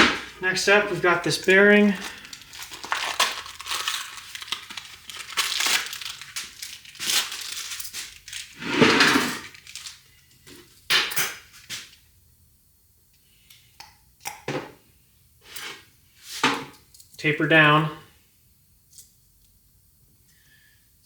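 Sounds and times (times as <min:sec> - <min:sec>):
packaging crinkling and rustling: 0:00.2 - 0:12.0.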